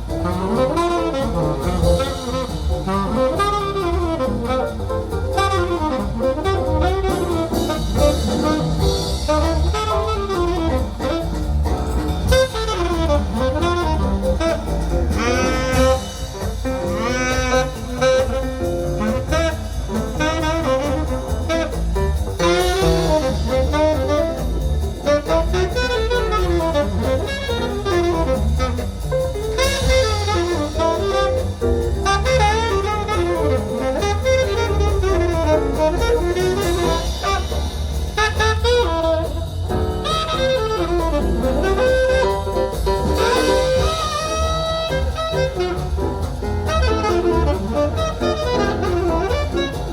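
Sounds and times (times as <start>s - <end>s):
jazz saxophone over brass and drums: 0.0s - 49.9s.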